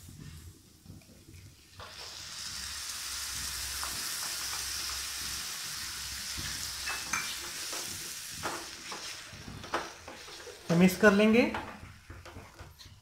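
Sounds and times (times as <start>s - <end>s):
sauce sizzling in a hot pan: 0.0s - 12.2s
spatula scraping a pan: 6.4s - 10.7s.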